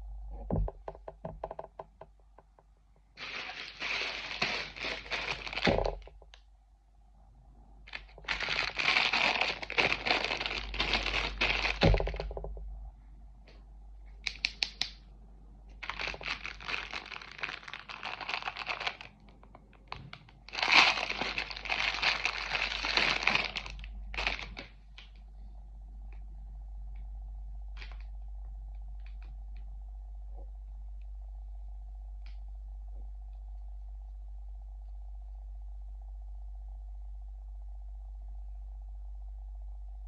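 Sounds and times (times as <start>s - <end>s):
packaging crinkling and tearing: 3.2s - 6.1s, 7.9s - 12.3s, 15.8s - 25.2s, 27.8s - 28.1s
sharp cracks and clicks: 14.2s - 15.0s.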